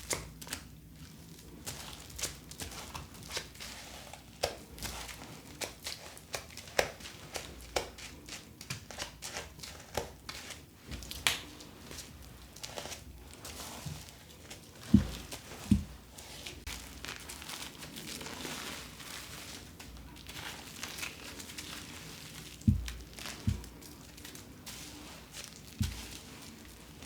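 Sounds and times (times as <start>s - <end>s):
plastic packaging crinkling: 11.0s - 27.0s
dull thumps: 14.8s - 16.0s, 22.6s - 23.8s.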